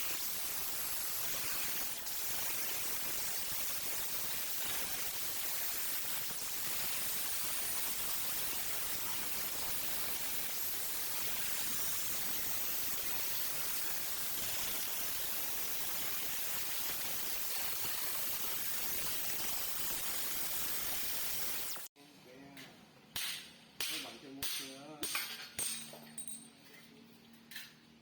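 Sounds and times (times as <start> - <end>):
steady hiss: 0.0 - 21.9.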